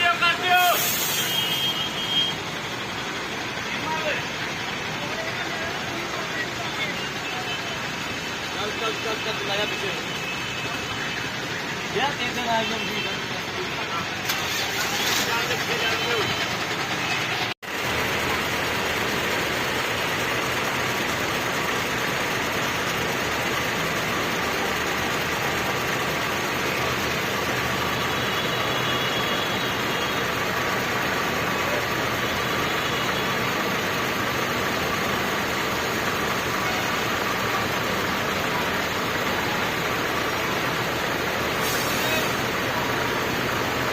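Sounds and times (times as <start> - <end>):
bus engine: 0.0 - 43.9
traffic noise: 0.0 - 43.9.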